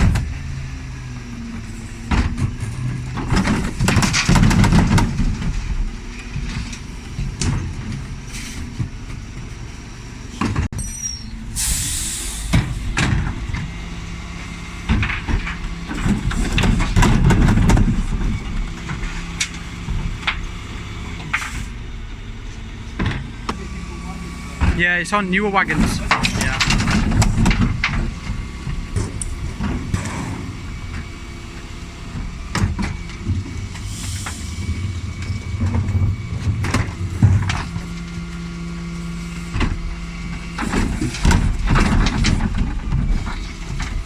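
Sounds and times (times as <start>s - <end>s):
bin lorry engine running: 0.0s - 44.0s
air hiss: 11.5s - 12.6s.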